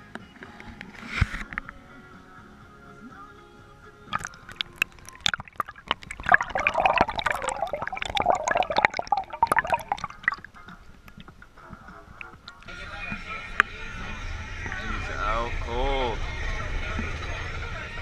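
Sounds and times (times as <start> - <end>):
water splashing and sloshing: 4.1 - 12.7.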